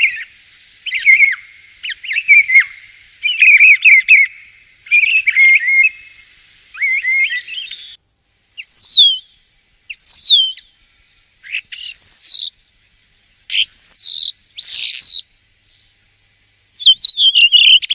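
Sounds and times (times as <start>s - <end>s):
starling singing: 0.0s - 6.2s, 6.8s - 8.0s, 8.6s - 9.3s, 9.9s - 10.7s, 11.4s - 12.5s, 13.5s - 15.3s, 16.8s - 17.9s.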